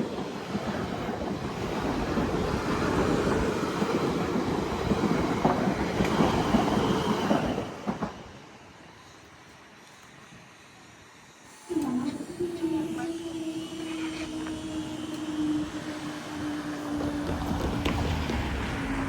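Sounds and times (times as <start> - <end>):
wheels clacking on rails: 0.0 - 8.5, 16.0 - 19.0
passenger train passing: 0.0 - 19.0.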